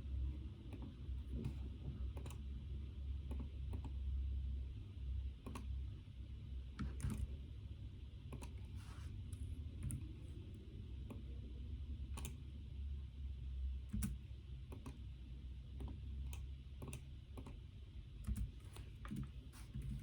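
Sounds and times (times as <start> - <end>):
computer keyboard keystrokes: 0.7 - 2.4, 3.2 - 4.0, 5.4 - 5.7, 6.8 - 7.3, 8.3 - 8.6, 9.8 - 10.1, 12.1 - 12.4, 13.9 - 15.1, 15.8 - 17.6, 18.2 - 20.0.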